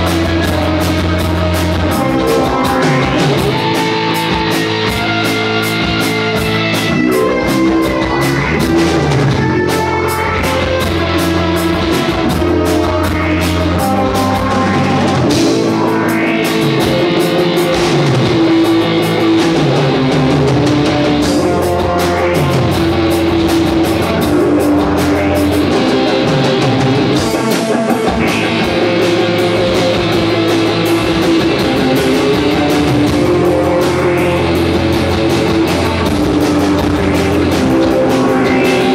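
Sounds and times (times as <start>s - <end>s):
drum kit: 0.0s - 38.9s
guitar: 0.0s - 38.9s.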